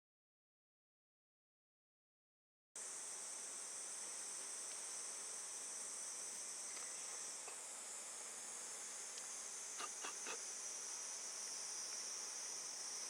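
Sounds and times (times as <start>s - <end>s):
insects chorus: 2.8s - 13.0s.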